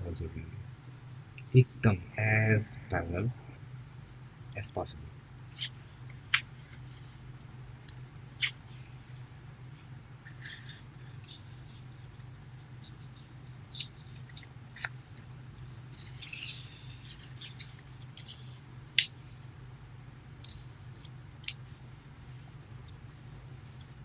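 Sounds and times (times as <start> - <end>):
paper crinkling and rustling: 10.3 - 19.7.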